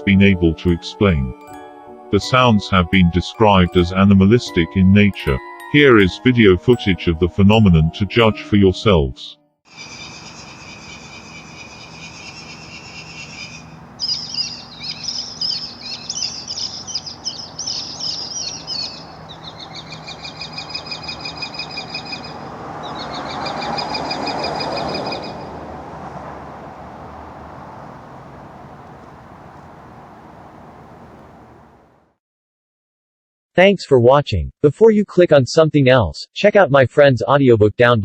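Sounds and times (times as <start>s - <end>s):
high-pitched chattering calls: 9.7s - 25.4s
vehicle passing: 9.7s - 32.1s.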